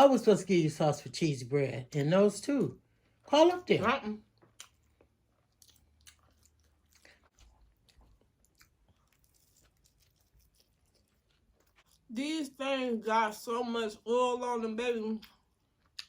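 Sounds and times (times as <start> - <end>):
person chewing food: 4.2 - 12.1, 15.2 - 16.0.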